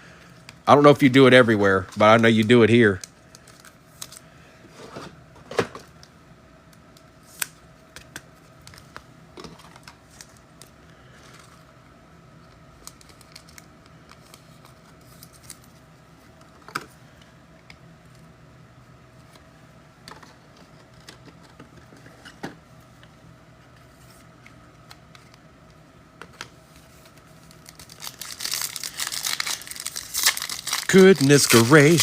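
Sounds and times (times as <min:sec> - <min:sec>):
cards and foil packs handled: 0:00.2 - 0:04.4, 0:06.9 - 0:11.7, 0:12.4 - 0:15.9, 0:26.3 - 0:32.0.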